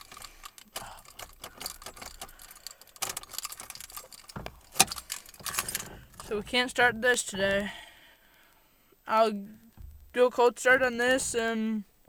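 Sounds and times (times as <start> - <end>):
keys jangling on a key ring: 0.0 - 6.3.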